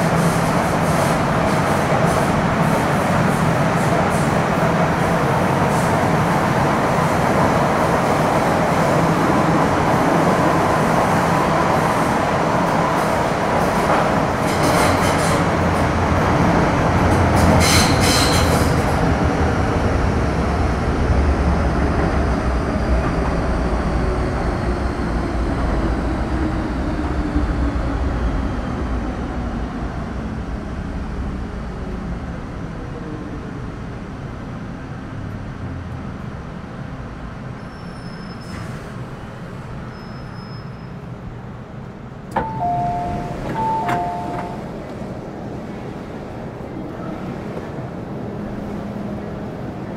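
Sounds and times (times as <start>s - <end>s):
train running noise inside car: 0.0s - 9.2s, 11.8s - 33.8s, 41.8s - 49.9s
high wheel squeal: 37.6s - 38.8s, 39.9s - 41.0s.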